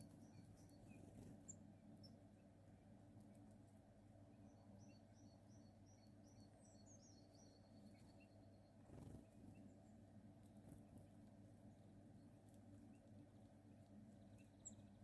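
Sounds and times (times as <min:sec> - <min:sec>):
small songbird singing: 0:00.0 - 0:02.4, 0:04.3 - 0:10.1, 0:11.7 - 0:15.0.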